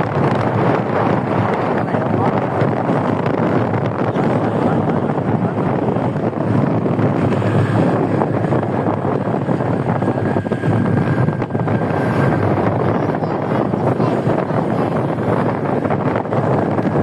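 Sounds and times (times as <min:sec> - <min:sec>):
moving vehicle running noise: 0:00.0 - 0:17.0
wind buffeting microphone: 0:00.0 - 0:17.0.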